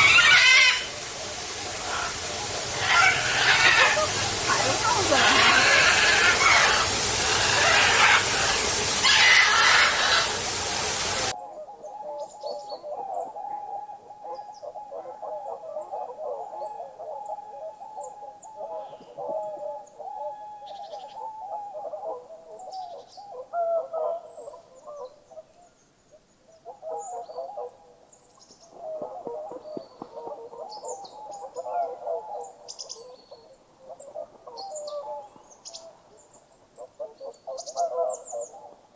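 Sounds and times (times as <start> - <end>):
birds warbling chatter: 0.0 - 11.3.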